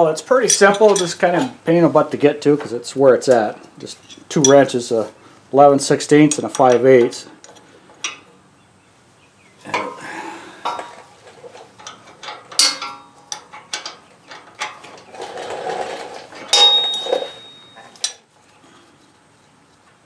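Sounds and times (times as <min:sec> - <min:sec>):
wrenches clicking on metal: 0:00.4 - 0:01.5, 0:06.2 - 0:08.2, 0:10.7 - 0:18.2
brief metallic ringing tone: 0:16.6 - 0:18.0.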